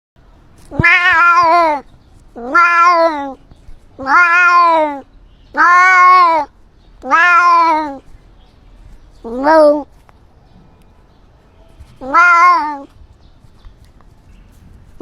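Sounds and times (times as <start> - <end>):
cat meowing: 0.7 - 3.4, 4.0 - 8.1, 9.2 - 9.9, 12.0 - 13.0.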